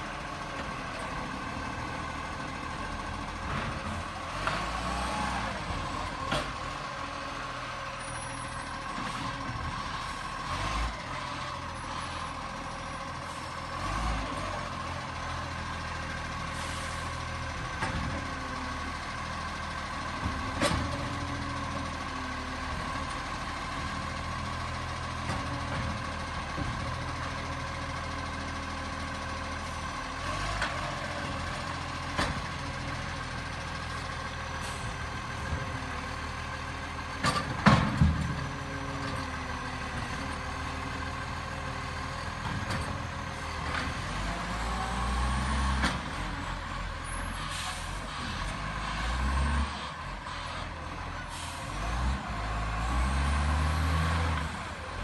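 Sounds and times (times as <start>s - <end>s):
clunks: 37.1s - 39.3s.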